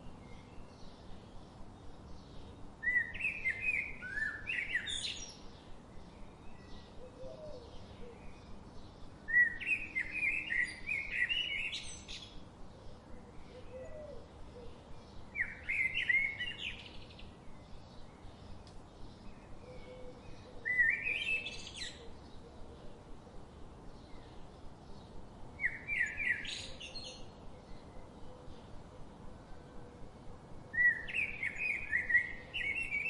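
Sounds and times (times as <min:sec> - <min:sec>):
faint bird chirps: 0:06.1 - 0:23.0, 0:30.7 - 0:33.0.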